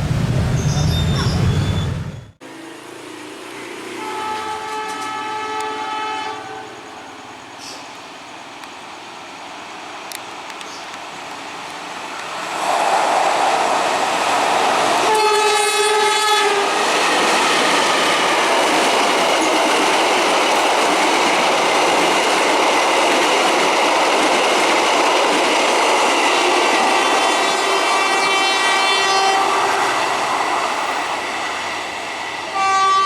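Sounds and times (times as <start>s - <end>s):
train rolling past: 0.0s - 33.0s
locomotive horn: 3.9s - 7.1s, 15.0s - 16.8s, 26.7s - 30.1s, 32.5s - 33.0s.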